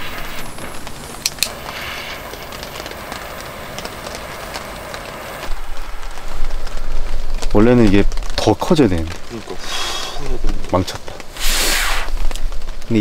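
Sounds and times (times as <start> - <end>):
rain hiss with patters: 0.0 - 13.0
sharp clicks: 0.6 - 5.0.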